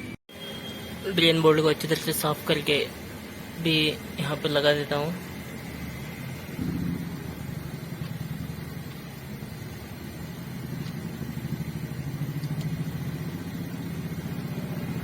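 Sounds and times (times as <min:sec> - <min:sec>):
engine idling: 0:04.4 - 0:15.0.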